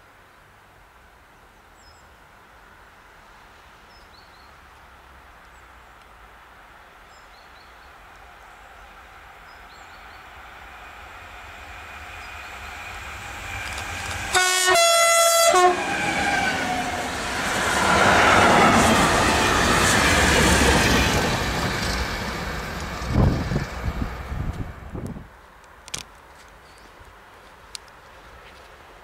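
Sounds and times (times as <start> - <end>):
freight train passing: 6.2 - 25.3
two-note train horn: 14.3 - 17.0.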